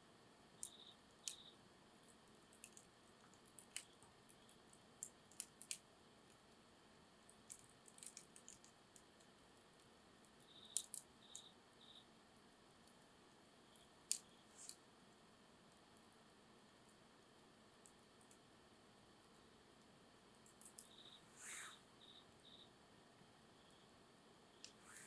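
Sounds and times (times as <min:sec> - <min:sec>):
faint high chirps: 0:00.6 - 0:01.6, 0:10.4 - 0:12.1, 0:20.5 - 0:22.8.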